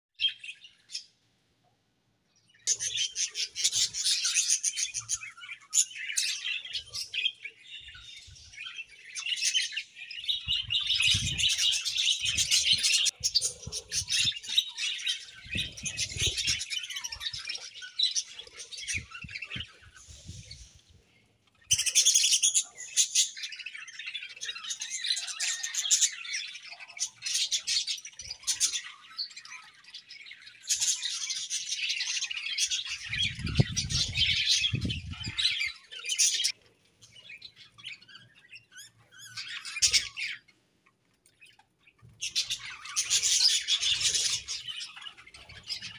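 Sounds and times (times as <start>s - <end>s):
budgerigars chirping: 2.7s - 20.6s.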